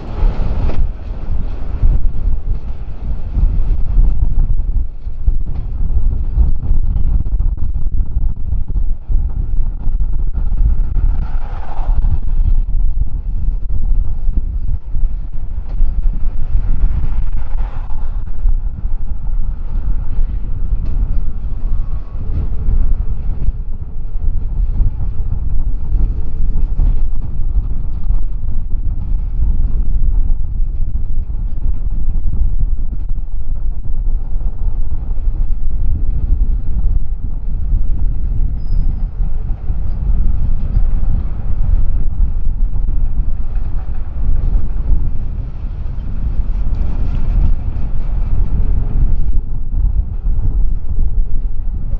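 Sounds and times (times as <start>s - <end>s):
freight train passing: 0.0s - 6.9s, 8.8s - 29.8s
wind noise on microphone: 0.0s - 51.9s.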